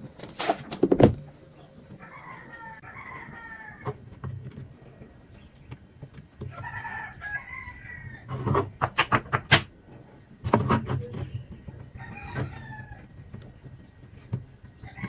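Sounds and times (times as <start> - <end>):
rooster crowing: 2.0 - 4.0, 6.6 - 8.4, 12.0 - 13.1.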